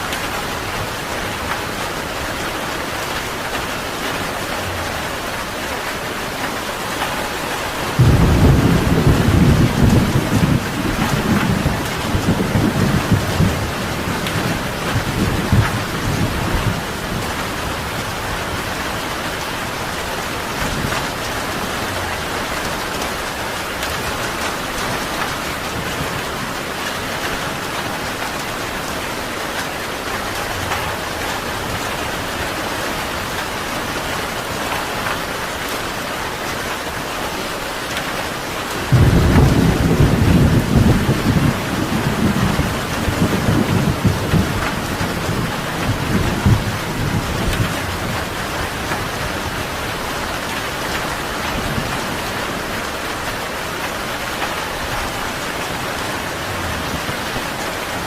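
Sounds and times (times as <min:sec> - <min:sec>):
steady rain falling: 0:00.0 - 0:58.0
loud low thunder rumble: 0:07.9 - 0:19.1, 0:38.9 - 0:48.4.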